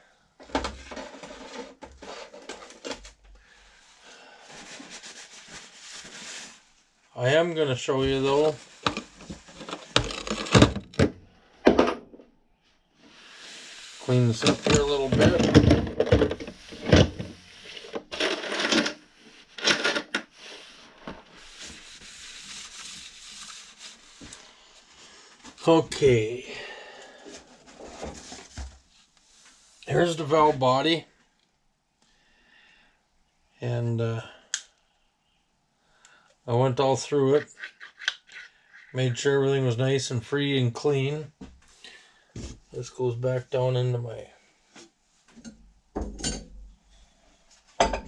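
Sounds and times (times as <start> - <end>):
rustling and crumpling by hand: 4.5 - 6.8
rubbing noise: 20.3 - 24.4
tools clattering on workbench: 45.4 - 46.6.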